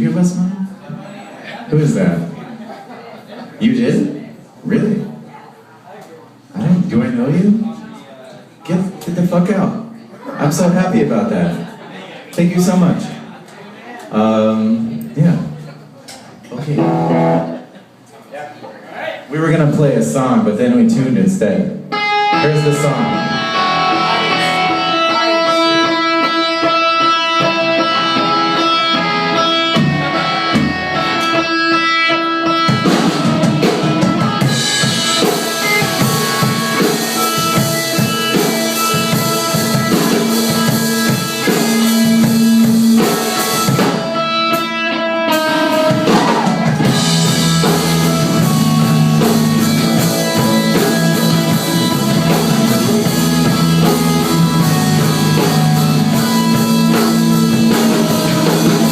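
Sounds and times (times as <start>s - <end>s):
drums: 12.4s - 18.1s, 19.2s - 58.9s
electric guitar: 16.6s - 17.7s, 21.9s - 58.9s
live rock band playing: 16.6s - 18.0s, 20.8s - 58.9s.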